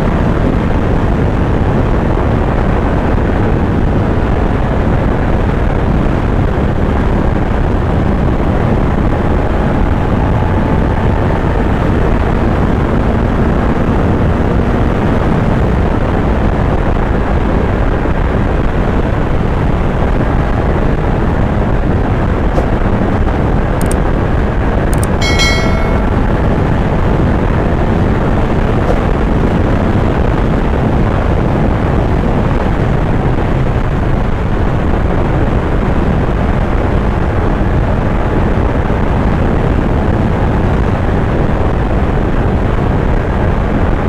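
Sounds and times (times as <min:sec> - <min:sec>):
wind rush on microphone: 0:00.0 - 0:44.0
motorcycle engine cruising: 0:05.2 - 0:33.0.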